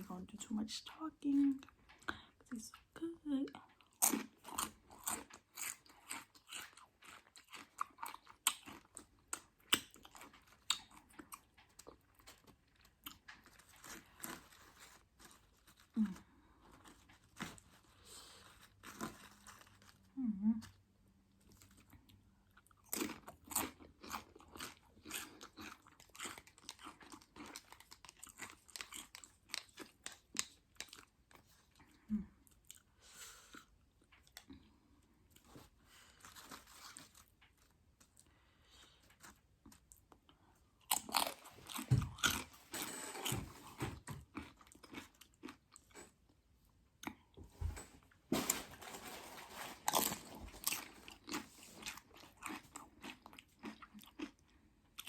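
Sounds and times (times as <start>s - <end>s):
quiet chewing: 1.4s - 47.7s, 49.6s - 55.0s
crunching tortilla chips: 3.9s - 20.2s, 21.4s - 31.7s, 48.7s - 54.4s.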